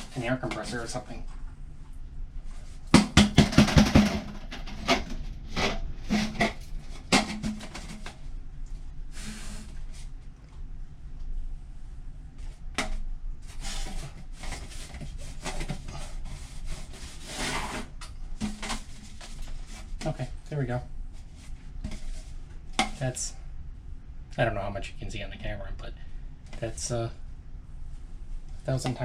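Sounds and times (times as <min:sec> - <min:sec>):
hands scraping inside metal duct: 0:03.6 - 0:08.2, 0:09.1 - 0:10.1, 0:13.4 - 0:20.2.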